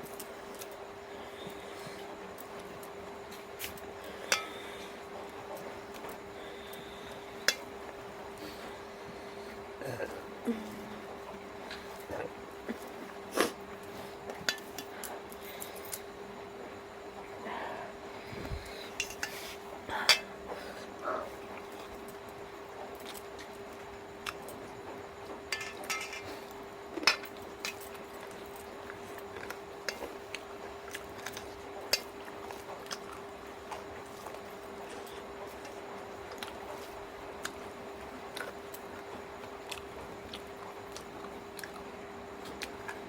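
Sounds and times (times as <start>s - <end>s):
steady hum: 0.0s - 43.0s
chewing and biting clicks: 23.0s - 25.3s, 27.0s - 43.0s
dishes clinking: 25.5s - 26.3s.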